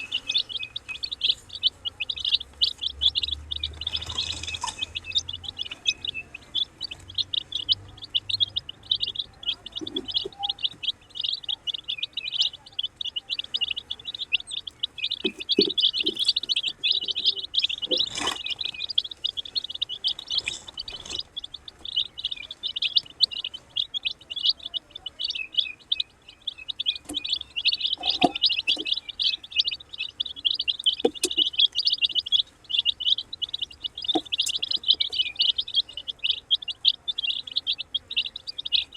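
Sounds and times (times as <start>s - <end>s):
baby chickens peeping: 0.0s - 38.9s.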